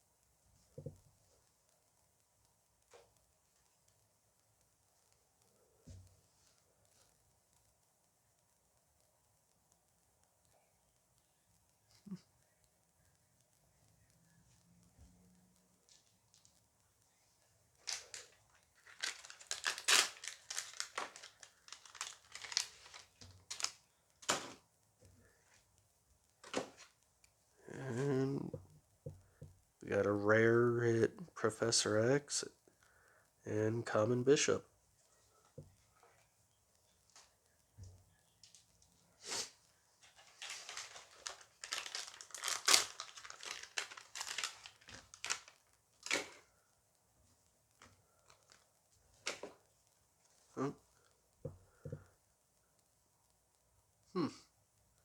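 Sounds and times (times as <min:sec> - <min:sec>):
foil wrapper tearing and crinkling: 0:17.8 - 0:24.6, 0:40.0 - 0:46.4.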